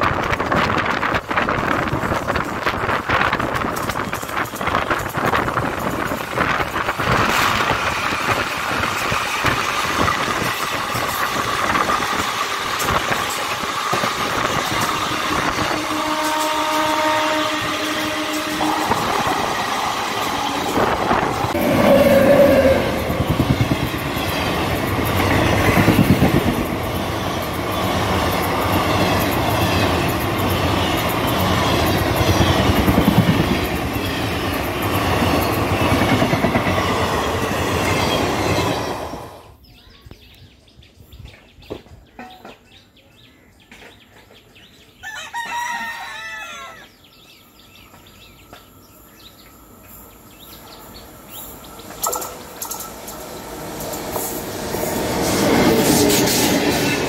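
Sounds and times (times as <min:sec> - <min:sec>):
train wheels clattering over rails: 0:00.0 - 0:16.6, 0:17.6 - 0:39.4, 0:50.4 - 0:57.0
rooster crowing: 0:21.4 - 0:23.2, 0:45.0 - 0:46.9.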